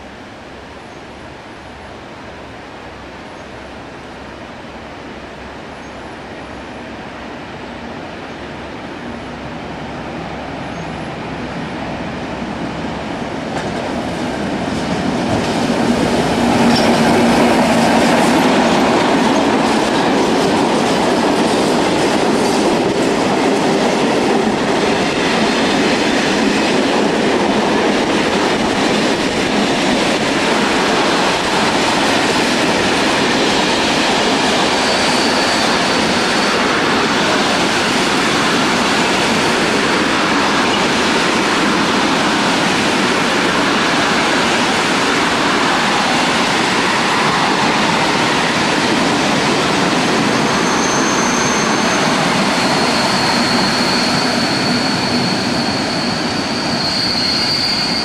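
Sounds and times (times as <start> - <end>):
diesel locomotive passing: 0.0 - 58.0
high wheel squeal: 34.5 - 37.1, 50.2 - 58.0.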